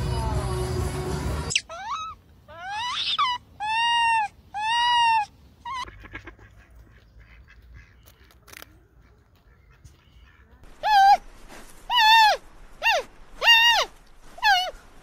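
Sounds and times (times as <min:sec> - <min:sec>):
macaque high calls: 0:01.5 - 0:06.6, 0:10.7 - 0:11.3, 0:11.9 - 0:14.8.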